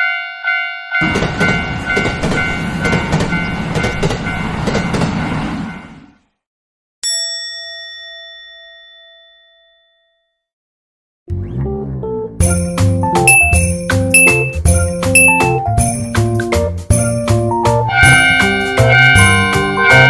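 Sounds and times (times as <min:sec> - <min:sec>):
railroad crossing bell clanging: 0:00.0 - 0:06.0, 0:07.0 - 0:10.1, 0:12.8 - 0:16.3, 0:17.9 - 0:20.0
train rumble and wheel clatter: 0:01.0 - 0:06.2, 0:14.2 - 0:20.0
bell-like ding ringing out: 0:07.0 - 0:10.4, 0:13.3 - 0:14.6, 0:15.2 - 0:15.6.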